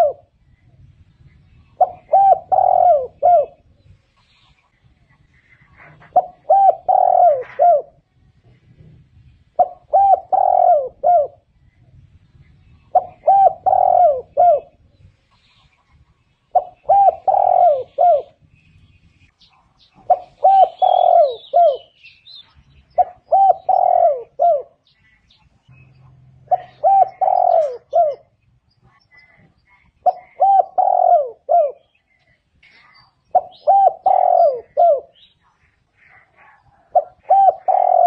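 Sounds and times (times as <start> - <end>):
dove cooing: 0.0 - 0.3, 1.7 - 3.8, 5.6 - 8.0, 9.5 - 11.5, 12.6 - 14.9, 16.5 - 18.4, 20.0 - 22.0, 22.9 - 24.9, 26.4 - 28.4, 30.0 - 32.3, 33.3 - 38.0.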